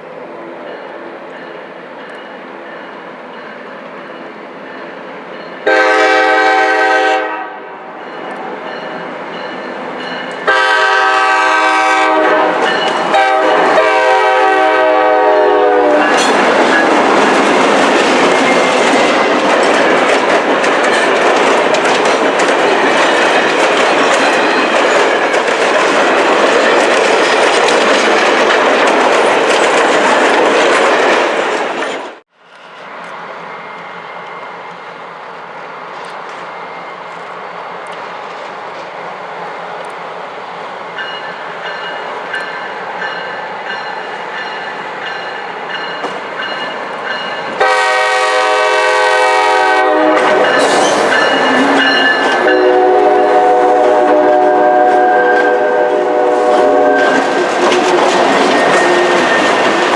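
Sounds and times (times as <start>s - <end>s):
train horn blasts: 5.6s - 7.9s, 10.4s - 16.4s, 47.6s - 57.5s
train wheels clacking: 8.0s - 14.7s, 15.9s - 34.4s, 41.0s - 59.9s.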